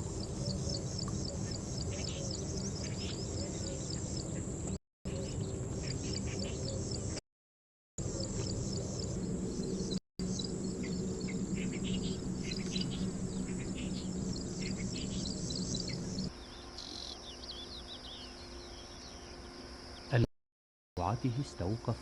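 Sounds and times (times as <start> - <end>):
small birds chirping: 0.0 - 7.2, 8.0 - 20.3
steady low hum: 8.0 - 20.3.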